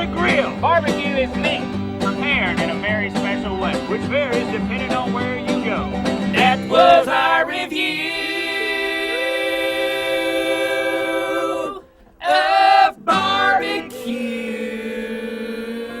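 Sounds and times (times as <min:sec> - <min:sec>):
person singing long notes: 0:06.4 - 0:16.0.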